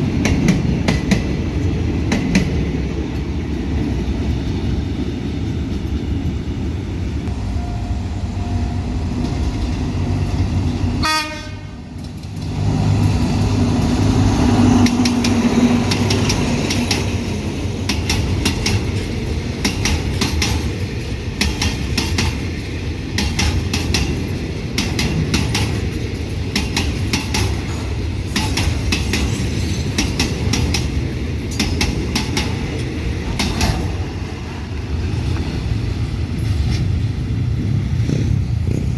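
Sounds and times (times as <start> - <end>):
train wheels clicking over rail joints: 0.0 - 6.6, 11.9 - 38.9
train horn: 11.0 - 12.0.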